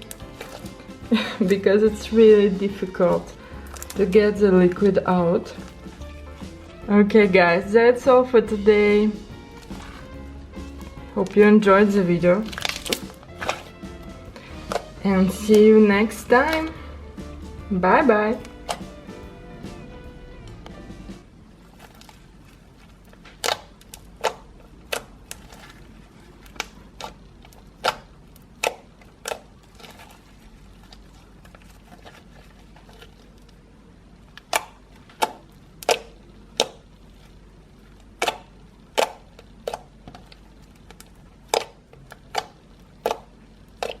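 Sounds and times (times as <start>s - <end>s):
slime clicking pops: 34.4s - 36.8s.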